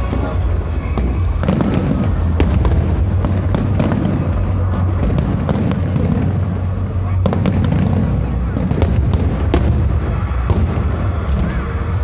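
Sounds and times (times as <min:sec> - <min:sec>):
firework crackles and pops: 0:00.0 - 0:12.0
firework shell bursts rumbling: 0:00.0 - 0:12.0.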